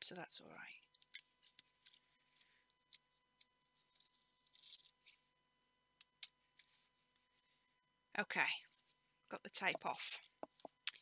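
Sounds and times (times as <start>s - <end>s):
tape peeling crinkling: 0.9s - 5.2s.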